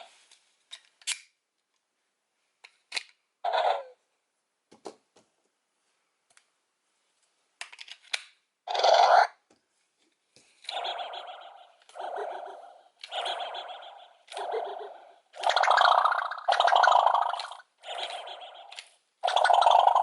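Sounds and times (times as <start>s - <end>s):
electronic toy sound effects: 10.7s - 20.0s.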